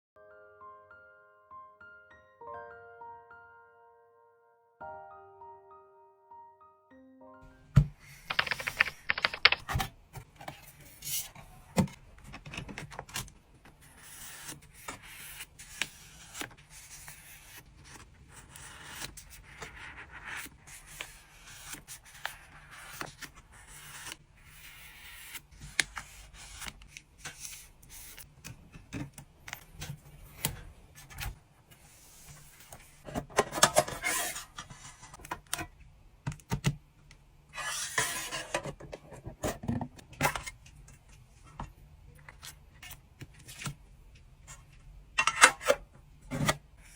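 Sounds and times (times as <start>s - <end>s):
plastic and paper crinkling: 8.3s - 9.8s.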